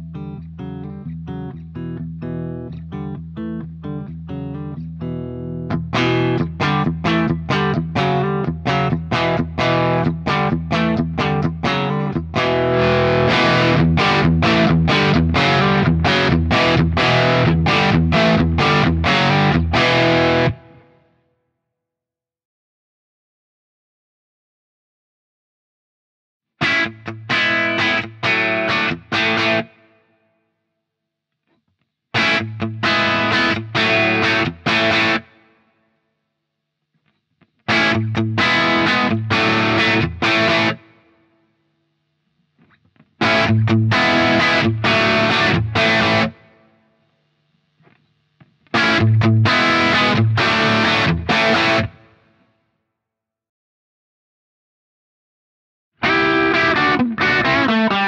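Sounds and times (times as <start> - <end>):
overdriven electric guitar chords: 0.0 - 21.2, 26.6 - 30.2, 32.1 - 35.8, 37.6 - 41.4, 43.1 - 46.9, 48.7 - 52.4, 56.0 - 58.0.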